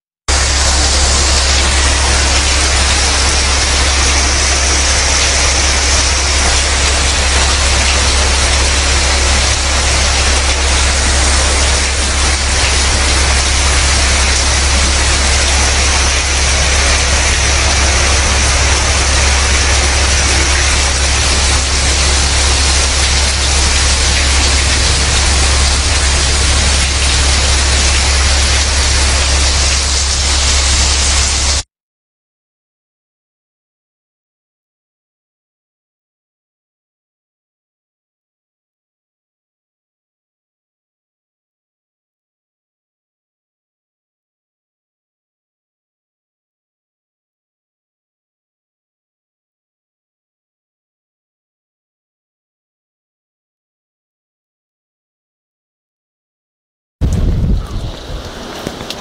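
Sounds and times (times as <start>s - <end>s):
deep rumble: 0.3s - 31.6s, 57.0s - 59.0s
torrential rain and floodwater rushing: 0.3s - 31.7s, 57.0s - 59.0s.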